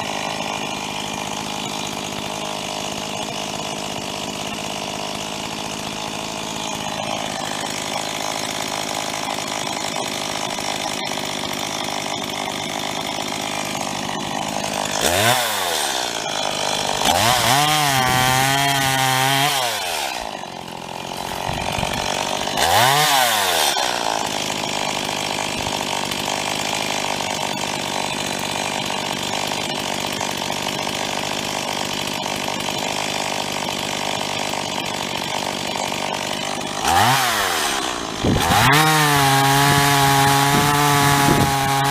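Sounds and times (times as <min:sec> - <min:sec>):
chainsaw idling and revving: 0:00.0 - 0:41.9.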